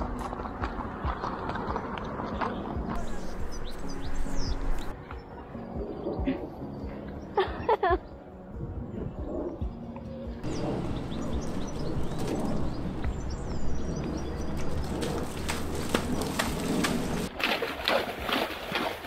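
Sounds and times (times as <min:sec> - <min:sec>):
hooves stepping through mud: 0:00.0 - 0:04.9, 0:10.4 - 0:19.0
steady low rumble: 0:10.4 - 0:17.3
wild birds calling: 0:10.4 - 0:17.3.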